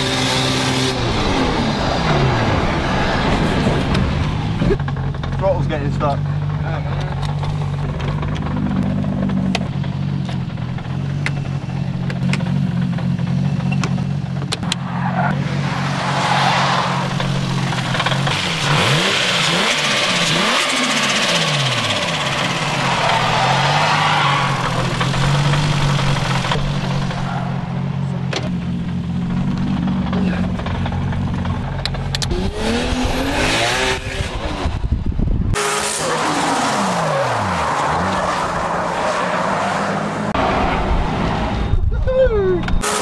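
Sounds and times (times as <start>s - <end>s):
car engine idling: 1.8s - 32.3s.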